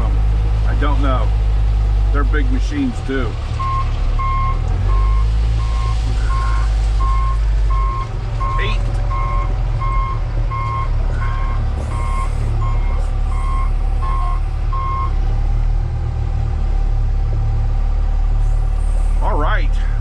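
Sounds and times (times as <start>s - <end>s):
diesel engine running: 0.0s - 20.0s
backup alarm beeping: 3.6s - 15.1s.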